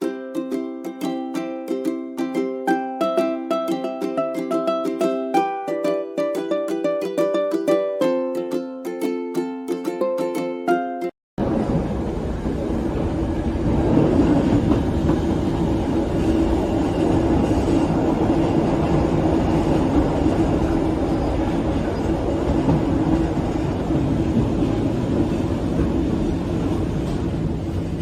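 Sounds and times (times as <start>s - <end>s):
train wheels rumbling on rails: 11.4s - 28.0s.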